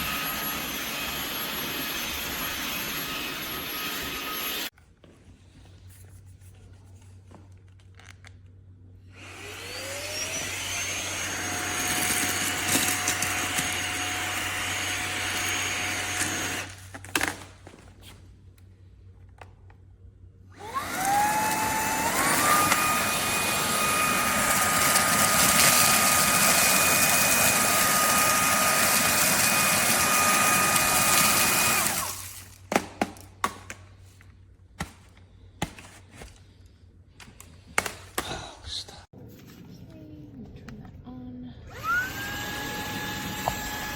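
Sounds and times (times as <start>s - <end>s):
handheld vacuum motor whining: 0.0s - 4.7s, 9.1s - 17.0s, 20.5s - 32.6s, 41.7s - 43.9s.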